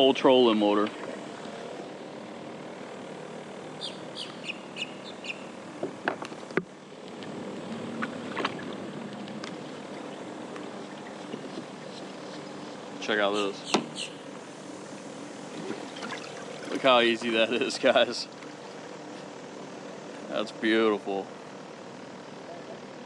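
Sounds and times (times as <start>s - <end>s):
steady low hum: 0.0s - 23.0s
bird chirping: 3.8s - 5.5s, 13.4s - 14.3s
trolling motor clicks and knocks: 5.8s - 12.5s.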